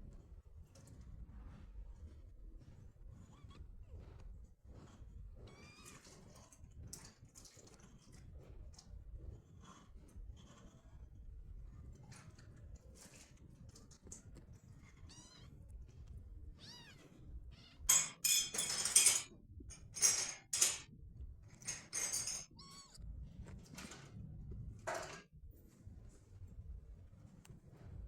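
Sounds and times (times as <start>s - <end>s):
kitten meows: 5.5s - 6.0s, 14.9s - 15.6s, 16.6s - 17.9s, 22.6s - 23.0s
cats squealing: 22.5s - 23.0s.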